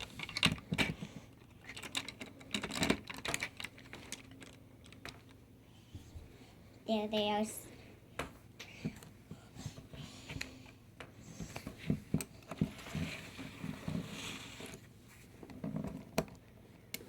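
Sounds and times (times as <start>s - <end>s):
plastic pieces clicking and tapping: 0.0s - 5.4s.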